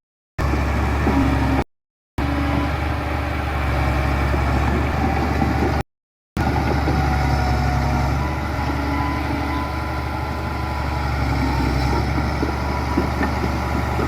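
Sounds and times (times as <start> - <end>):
diesel engines humming: 2.2 - 5.8, 6.4 - 14.0.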